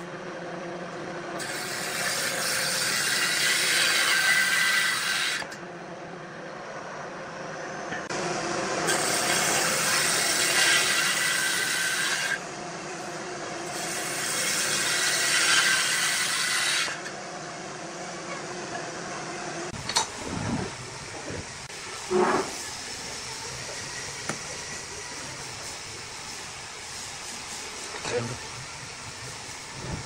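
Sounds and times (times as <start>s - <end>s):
tool cutting wood on lathe: 1.4s - 5.6s, 8.8s - 12.4s, 13.6s - 17.1s.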